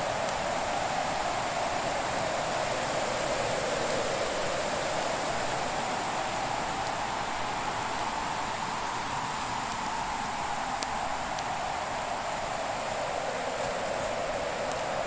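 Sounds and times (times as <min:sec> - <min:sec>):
fire crackles: 0:04.1 - 0:15.0.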